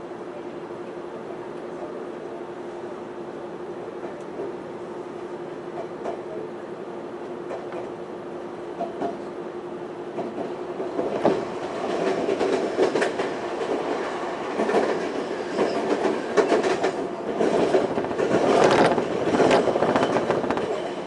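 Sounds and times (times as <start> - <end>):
train running noise: 3.7 - 21.0
passing train rushing by: 8.7 - 21.0.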